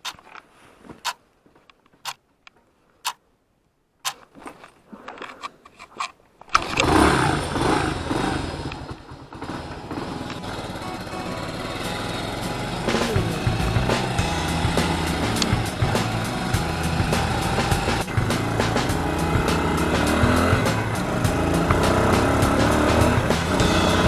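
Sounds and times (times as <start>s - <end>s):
sharp clicks: 0.0s - 0.4s, 2.0s - 3.2s, 4.0s - 4.3s, 14.8s - 16.3s
small motorcycle engine running: 6.6s - 24.0s.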